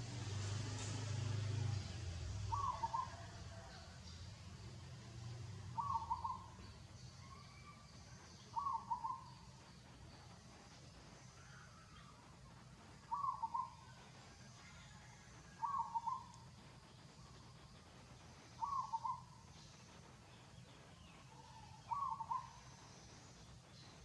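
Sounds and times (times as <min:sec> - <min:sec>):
animal calling: 0:02.5 - 0:03.3.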